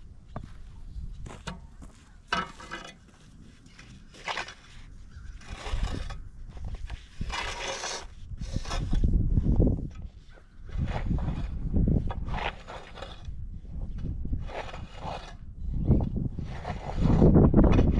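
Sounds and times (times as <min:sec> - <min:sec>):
snow shovel scraping snow: 0:02.5 - 0:09.5, 0:10.7 - 0:13.3, 0:14.4 - 0:15.5, 0:16.3 - 0:17.9.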